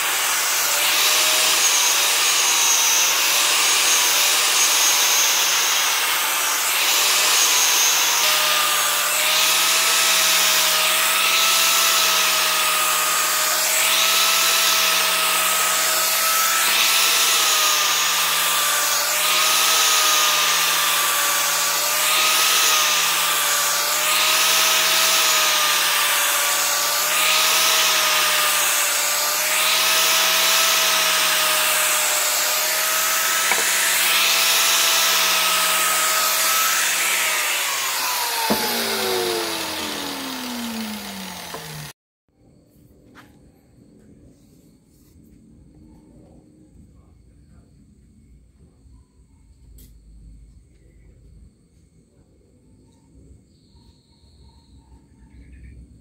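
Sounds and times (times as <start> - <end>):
blade rasping on abrasive: 0.0 - 42.0
electric grinder motor running: 0.0 - 42.0.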